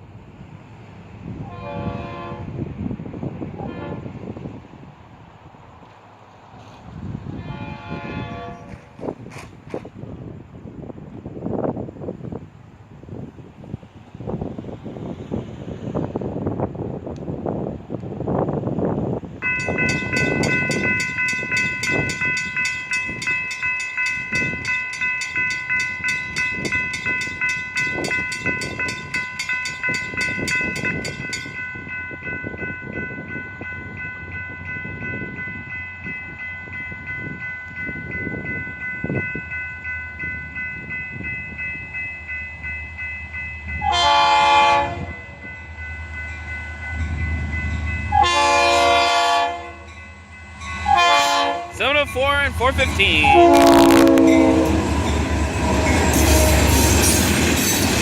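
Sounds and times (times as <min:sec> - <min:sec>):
train horn blast: 0:01.4 - 0:02.6, 0:03.6 - 0:04.2, 0:07.3 - 0:09.0, 0:43.8 - 0:45.2, 0:48.1 - 0:49.9, 0:50.8 - 0:57.0
crossing warning bell ringing: 0:19.4 - 0:58.0.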